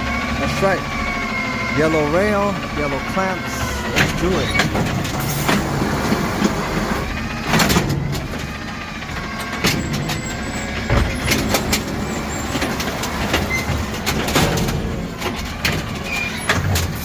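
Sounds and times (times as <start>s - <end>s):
garbage truck running: 0.0s - 17.0s
clanks and knocks: 3.9s - 6.7s, 7.4s - 17.0s.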